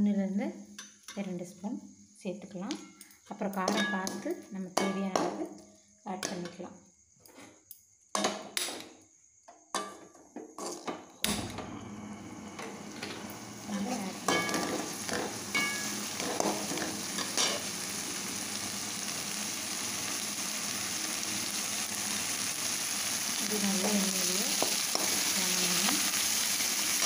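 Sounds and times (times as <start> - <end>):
leaves frying in oil: 11.2 - 27.0.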